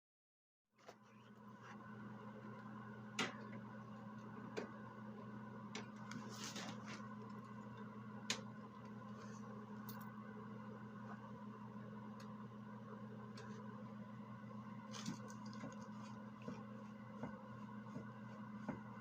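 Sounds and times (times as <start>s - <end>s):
steady low hum: 0.9s - 19.0s.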